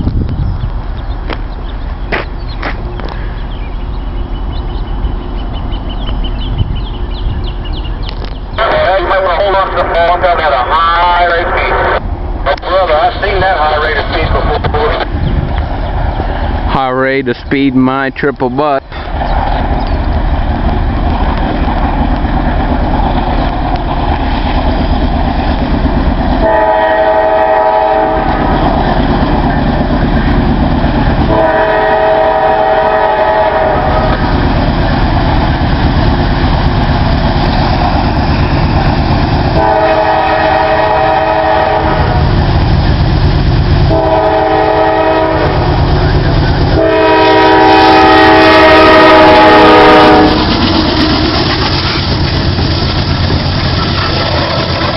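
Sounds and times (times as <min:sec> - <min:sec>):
train engines and wheels rumbling: 0:00.0 - 0:54.9
locomotive horn blasts: 0:26.4 - 0:28.5, 0:31.3 - 0:34.2, 0:39.6 - 0:42.2, 0:43.9 - 0:45.6, 0:46.8 - 0:50.5.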